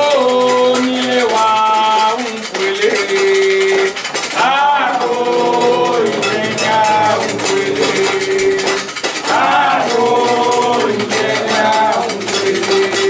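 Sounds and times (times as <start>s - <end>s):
clinking bells and rattles: 0.0s - 13.0s
voices chanting: 2.8s - 13.0s.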